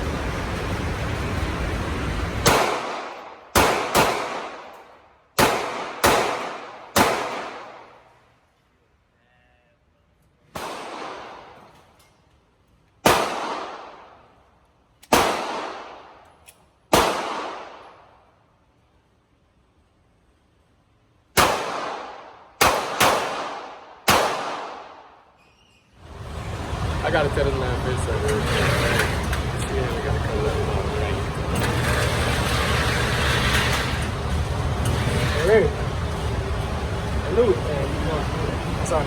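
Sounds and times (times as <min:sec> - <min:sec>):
loud rumble: 0:00.0 - 0:02.5, 0:26.0 - 0:39.0
pistol shots: 0:02.4 - 0:04.8, 0:05.4 - 0:07.9, 0:10.5 - 0:11.6, 0:13.0 - 0:14.2, 0:15.0 - 0:16.2, 0:16.9 - 0:18.0, 0:21.3 - 0:25.2.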